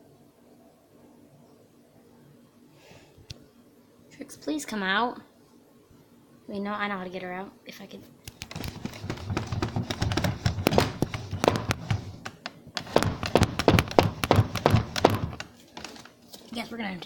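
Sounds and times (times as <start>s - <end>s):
rapid tapping and thumping: 8.3s - 16.1s.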